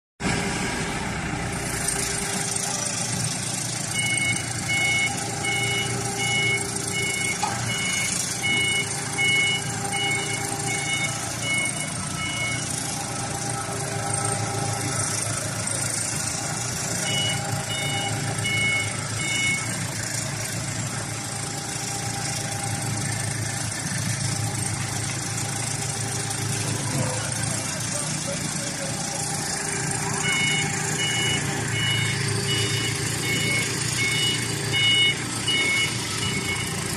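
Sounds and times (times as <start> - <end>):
vehicle engine running: 0.2 - 36.9
two-tone reversing alarm beeps: 3.8 - 13.3, 14.1 - 20.2, 29.1 - 36.9.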